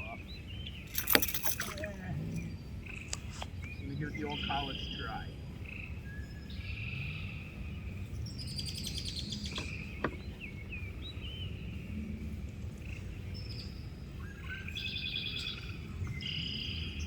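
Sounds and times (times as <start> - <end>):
birds chirping and trilling: 0.0 - 17.0
low rumble: 0.0 - 17.0.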